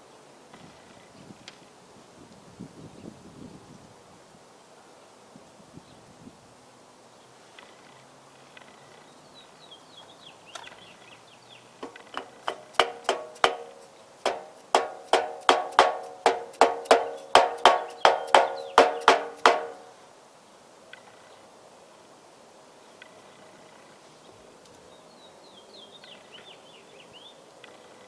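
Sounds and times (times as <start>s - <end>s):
sharp ringing knocks: 11.8s - 20.0s.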